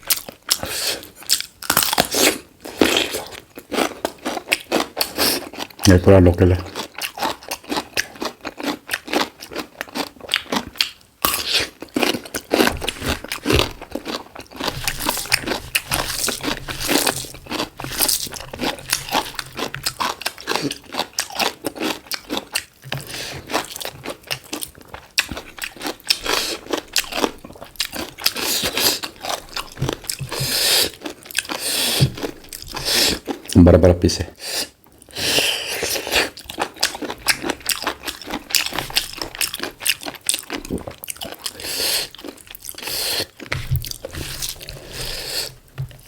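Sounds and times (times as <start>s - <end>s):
close chewing and crunching: 0.0s - 46.0s.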